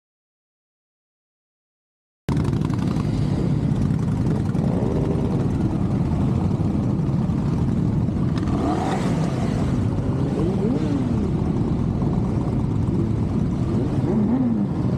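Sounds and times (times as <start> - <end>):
motorcycle engines revving: 2.3 - 14.9.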